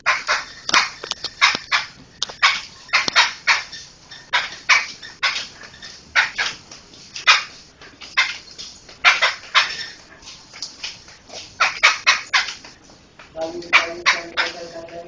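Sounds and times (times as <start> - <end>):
laughingthrush harsh calls: 0.0 - 6.6, 7.2 - 10.1, 11.6 - 12.6, 13.6 - 14.9.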